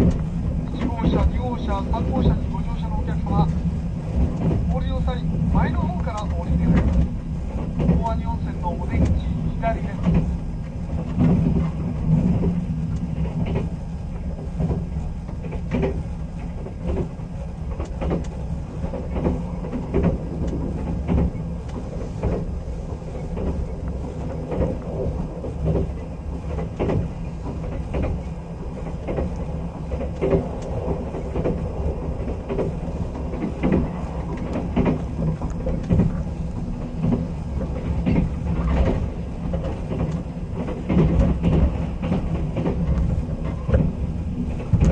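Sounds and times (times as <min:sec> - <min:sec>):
train carriage rumbling: 0:00.0 - 0:44.9
wheels knocking over rail joints: 0:23.2 - 0:44.9.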